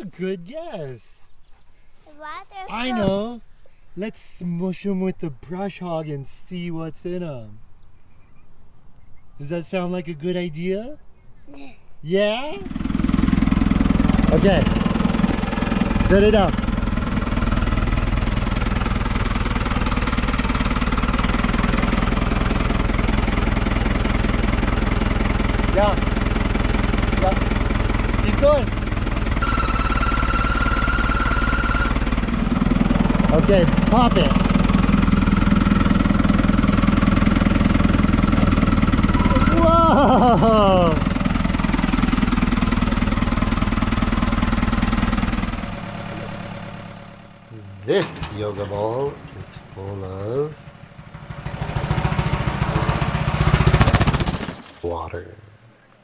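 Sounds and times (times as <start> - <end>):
tractor engine running: 12.7 - 55.0.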